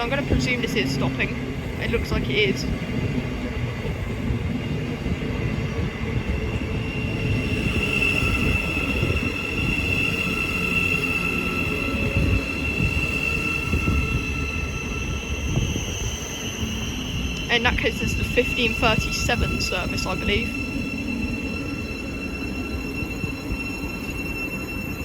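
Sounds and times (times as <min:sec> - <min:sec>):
train rumbling to a stop: 0:00.0 - 0:25.0
high-pitched brake squeal: 0:05.3 - 0:25.0.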